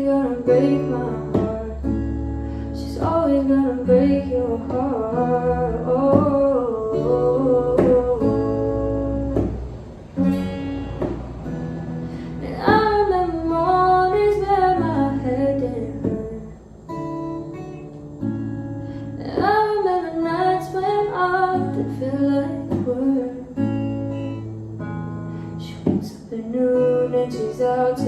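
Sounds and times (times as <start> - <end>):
person singing a pop song: 0.0 - 9.7, 12.3 - 16.6, 19.0 - 24.4, 25.5 - 28.0
strummed acoustic guitar: 0.0 - 28.0.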